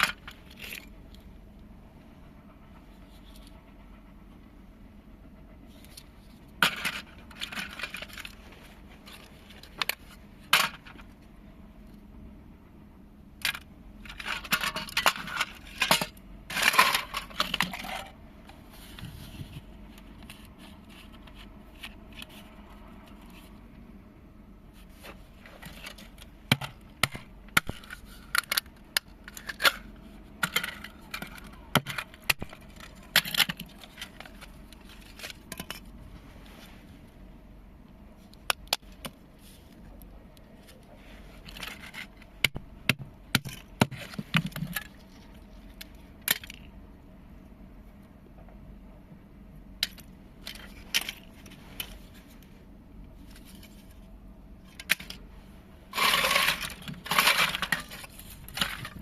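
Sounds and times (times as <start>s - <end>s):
parts scraping: 0.0s - 1.6s, 5.4s - 12.0s, 13.4s - 24.0s, 24.6s - 37.3s, 38.2s - 46.8s, 49.8s - 59.0s
small hard parts clicking: 25.5s - 36.0s, 55.9s - 59.0s.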